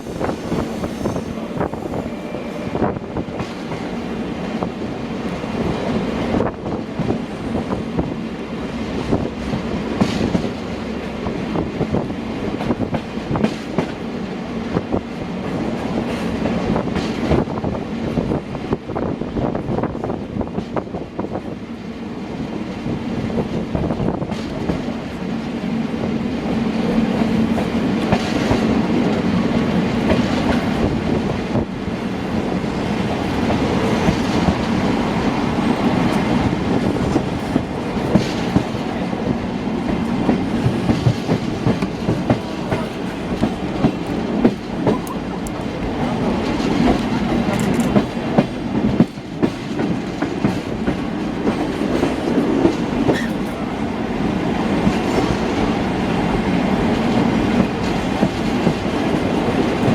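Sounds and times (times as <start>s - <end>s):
train rumbling on board: 0.0s - 59.9s
wheels clicking over rail joints: 35.9s - 53.7s.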